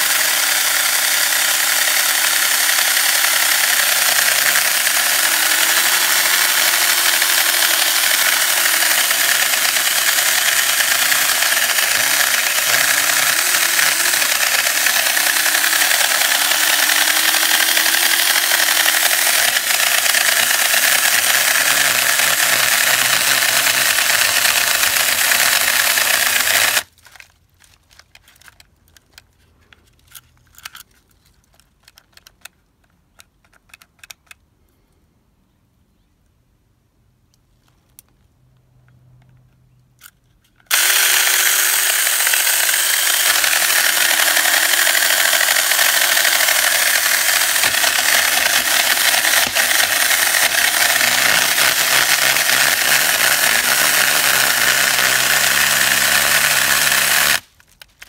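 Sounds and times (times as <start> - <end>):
mini chainsaw cutting wood: 0.0 - 27.3, 40.7 - 58.0
faint clicks and rustles: 26.9 - 34.4.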